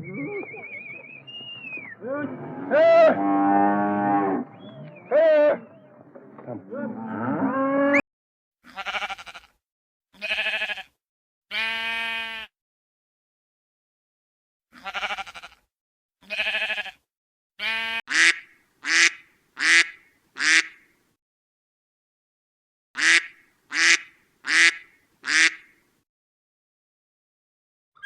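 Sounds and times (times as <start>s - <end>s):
duck quacking: 17.7s - 20.8s, 23.0s - 25.7s.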